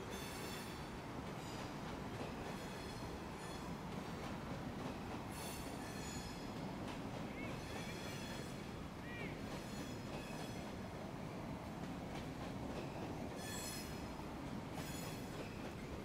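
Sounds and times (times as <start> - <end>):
freight train rumbling past: 0.0 - 16.0
train wheels squealing: 0.1 - 1.8, 2.4 - 3.9, 5.3 - 10.8, 12.8 - 16.0.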